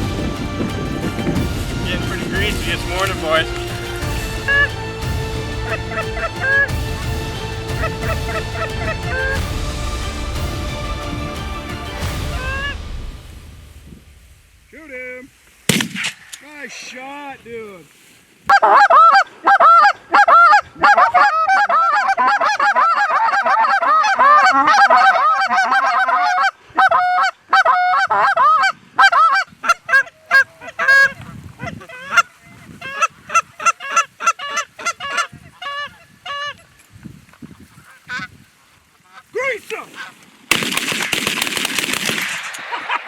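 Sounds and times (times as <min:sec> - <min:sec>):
geese honking: 0:00.0 - 0:12.9, 0:18.5 - 0:36.8, 0:38.9 - 0:40.2.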